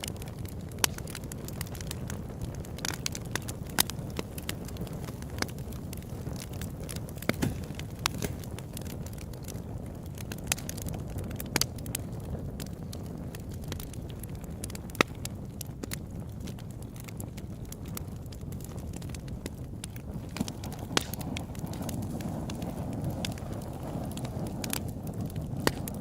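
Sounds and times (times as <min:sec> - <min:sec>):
campfire crackling: 0:00.0 - 0:26.0
fire low rumble: 0:00.0 - 0:26.0
loud fire pops: 0:00.0 - 0:26.0.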